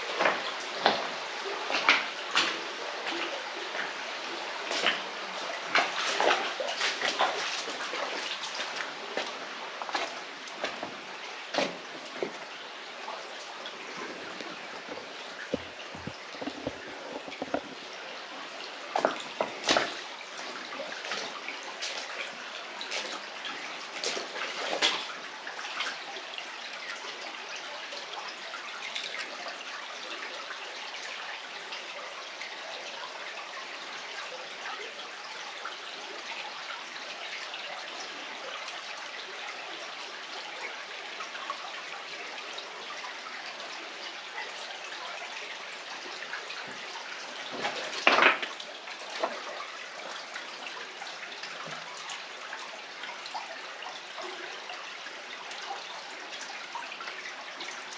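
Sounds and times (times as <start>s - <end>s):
water splashes or knocks: 0.0s - 4.0s, 4.6s - 12.6s, 13.7s - 18.0s, 18.9s - 22.2s, 46.6s - 49.7s
stream running over rocks: 0.0s - 57.9s.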